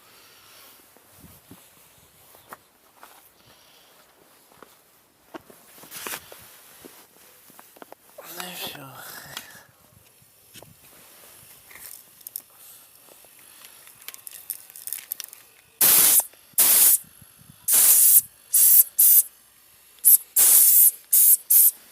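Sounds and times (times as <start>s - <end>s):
compressed air hissing from hose: 15.8s - 19.3s, 19.9s - 21.9s.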